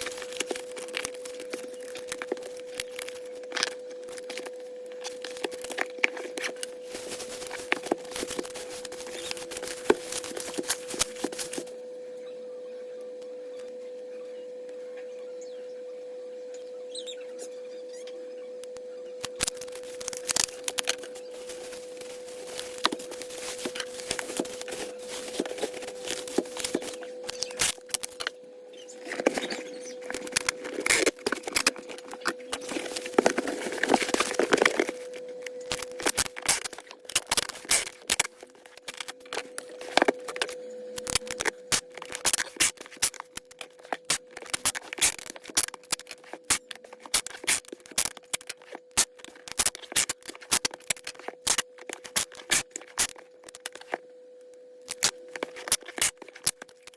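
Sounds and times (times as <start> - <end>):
packing material rustling: 0.0 - 11.8, 19.2 - 54.1, 54.9 - 56.9
steady hum: 0.0 - 56.9.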